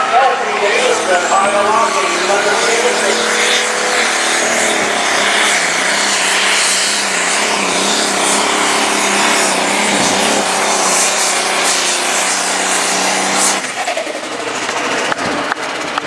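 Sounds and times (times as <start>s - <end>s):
diesel engine revving under load: 0.0s - 16.0s.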